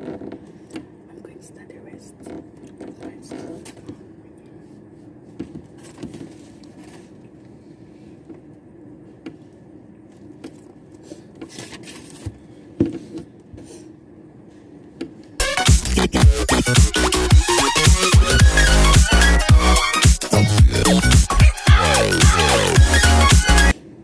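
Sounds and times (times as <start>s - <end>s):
loud electronic music: 15.4s - 23.8s.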